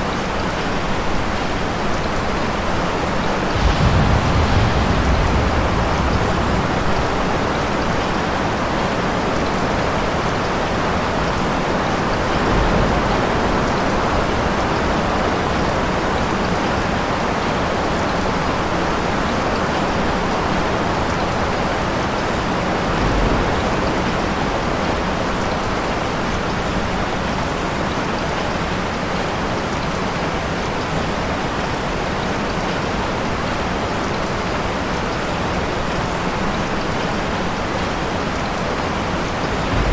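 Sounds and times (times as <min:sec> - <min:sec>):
steady rain falling: 0:00.0 - 0:39.9
distant thunder rumble: 0:02.9 - 0:10.0, 0:12.0 - 0:15.6, 0:22.2 - 0:26.1, 0:38.8 - 0:39.9.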